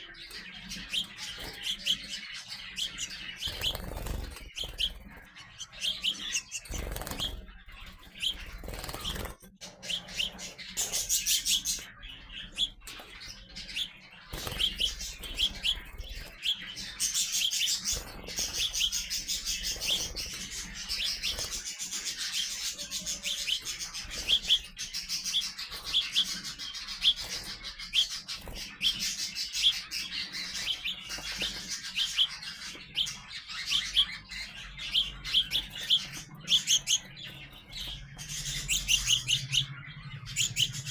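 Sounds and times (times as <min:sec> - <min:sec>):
young sparrows chirping: 0:00.0 - 0:40.9.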